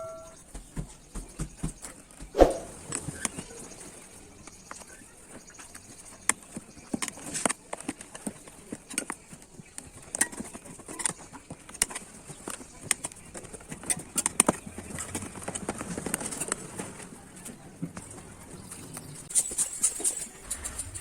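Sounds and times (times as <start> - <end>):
clicks and knocks on bicycle wheel: 5.6 - 17.1.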